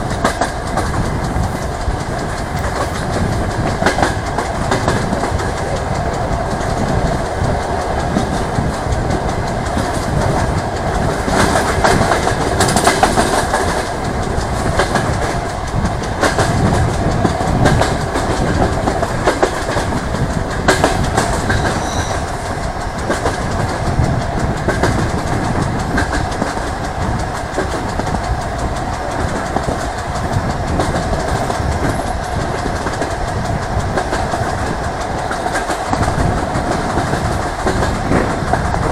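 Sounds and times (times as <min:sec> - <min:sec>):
train rumble: 0:00.0 - 0:38.9
wheels clacking over rail joints: 0:00.0 - 0:38.9.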